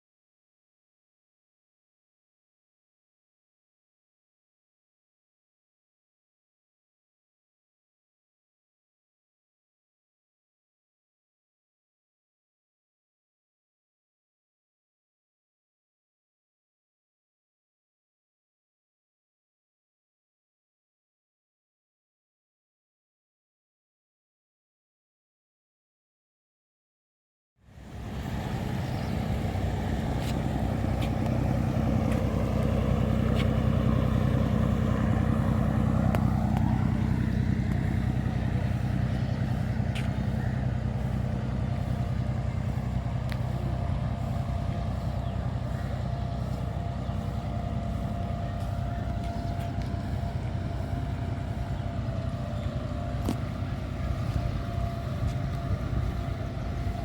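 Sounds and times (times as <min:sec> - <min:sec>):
boat engine droning: 0:27.6 - 0:57.0.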